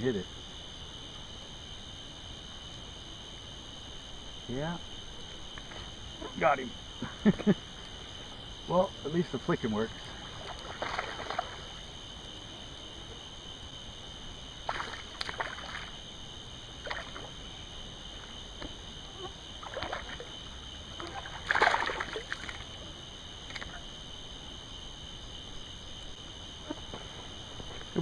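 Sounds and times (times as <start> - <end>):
fish splashing in water: 10.3 - 11.8, 14.6 - 16.0, 16.8 - 17.4, 19.6 - 20.3, 21.0 - 22.7.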